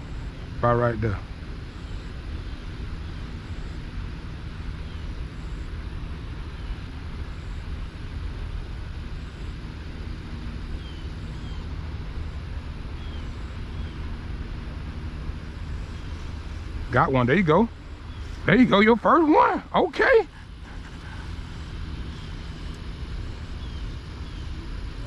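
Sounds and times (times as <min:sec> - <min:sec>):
distant road traffic rumble: 0:00.0 - 0:25.0
faint bird chirps: 0:04.8 - 0:05.7, 0:10.7 - 0:11.8, 0:13.0 - 0:14.1, 0:17.8 - 0:18.8, 0:20.3 - 0:24.7.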